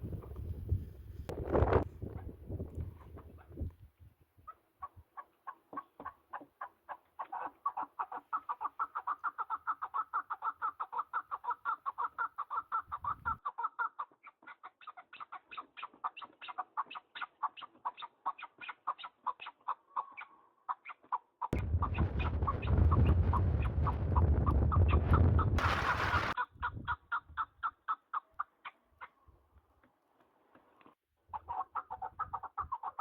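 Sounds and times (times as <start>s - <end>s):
partridge clucking call: 4.9s - 28.4s.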